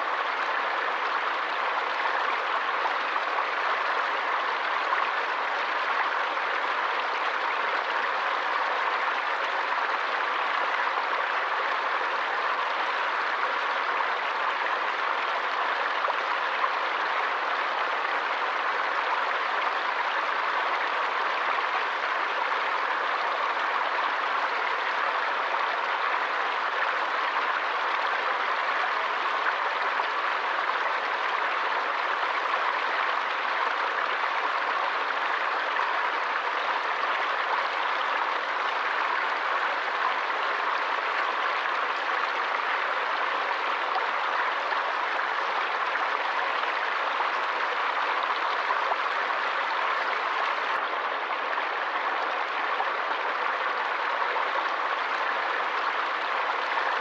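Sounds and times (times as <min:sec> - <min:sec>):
stream water running: 0:00.0 - 0:57.0.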